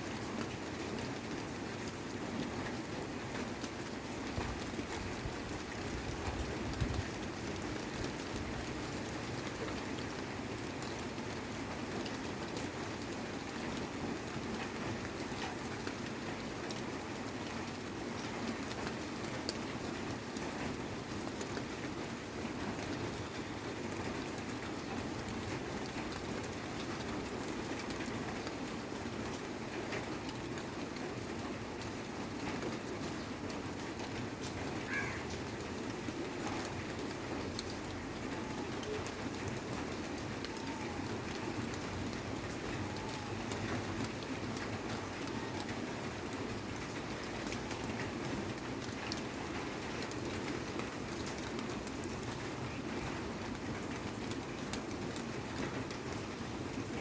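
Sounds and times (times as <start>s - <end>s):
rain-like background noise: 0.0s - 57.0s
faint bird calls: 34.8s - 35.4s.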